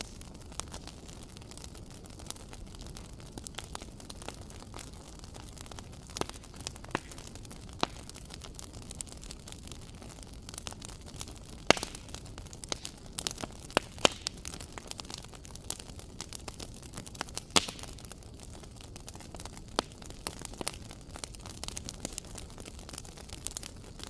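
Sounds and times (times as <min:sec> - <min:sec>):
low hiss of flames: 0:00.0 - 0:08.6
wood fire crackling and popping: 0:00.0 - 0:24.0.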